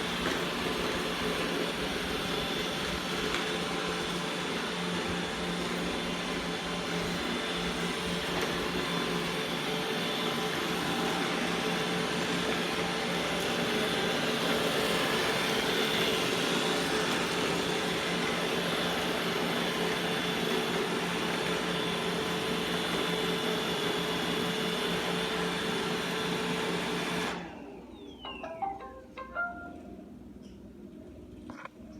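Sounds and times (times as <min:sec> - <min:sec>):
robot vacuum whirring: 0:00.0 - 0:28.8
short electronic tones: 0:28.2 - 0:30.0.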